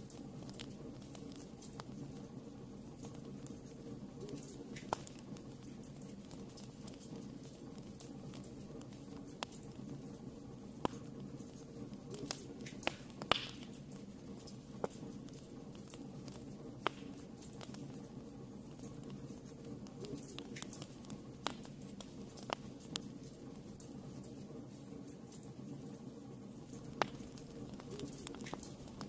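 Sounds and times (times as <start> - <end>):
fire crackling and popping: 0.0 - 29.0
fire rumbling: 0.0 - 29.0.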